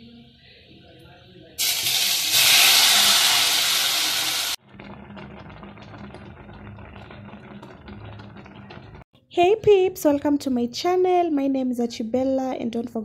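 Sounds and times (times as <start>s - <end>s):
food sizzling loudly in pan: 1.6s - 4.6s
finely crackling simmer: 1.6s - 9.1s.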